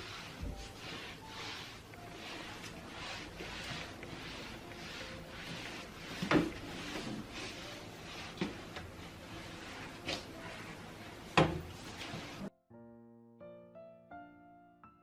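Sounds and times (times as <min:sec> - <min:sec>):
rubbing or rustling: 0:00.0 - 0:12.5.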